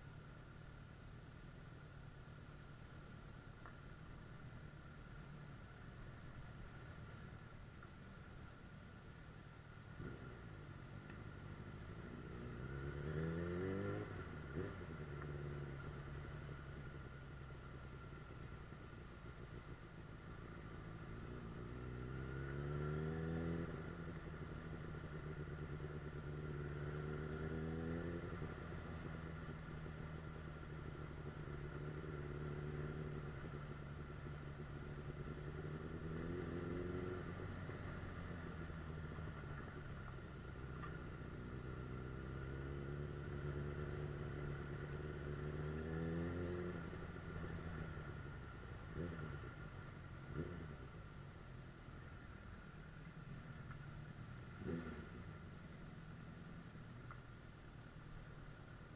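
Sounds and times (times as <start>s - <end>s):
motorcycle engine revving: 10.0s - 51.2s, 53.2s - 57.0s.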